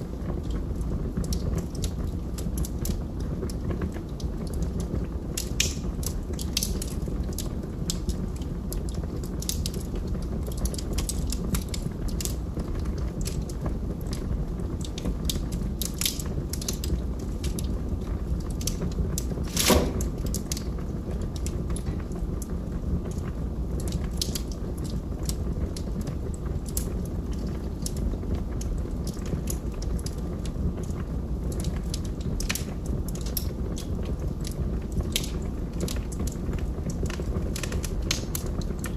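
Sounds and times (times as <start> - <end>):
flames rumbling in fireplace: 0.0 - 38.9
logs crackling: 15.8 - 25.4
loud fire pop: 19.4 - 20.5.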